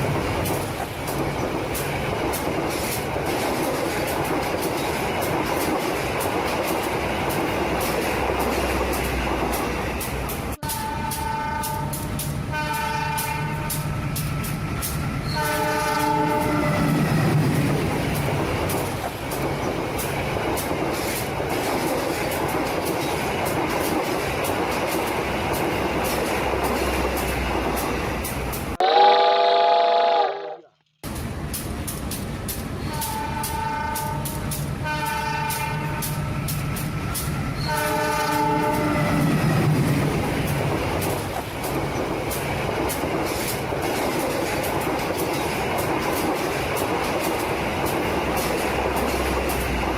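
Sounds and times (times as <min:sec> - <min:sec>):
train wheels clickety-clack: 0:00.0 - 0:28.8, 0:31.0 - 0:49.9
train rumbling along track: 0:00.0 - 0:49.9
train horn blasts: 0:10.6 - 0:13.9, 0:15.2 - 0:17.0, 0:28.8 - 0:30.7, 0:32.8 - 0:36.4, 0:37.6 - 0:39.2.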